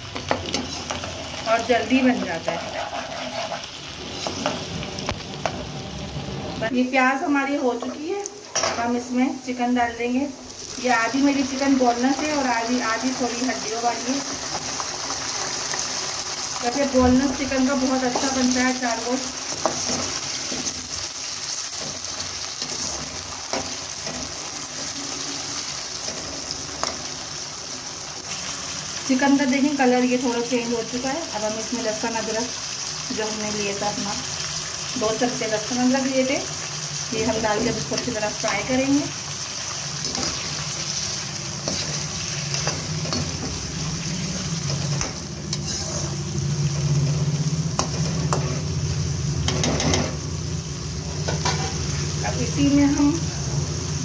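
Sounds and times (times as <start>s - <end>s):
chicken sizzling in hot oil: 0.0s - 54.0s
spatula scraping a pan: 2.2s - 4.7s, 19.5s - 20.9s, 40.0s - 43.5s, 44.1s - 46.2s
spatula scraping and knocking pan: 2.2s - 4.7s, 19.5s - 20.9s.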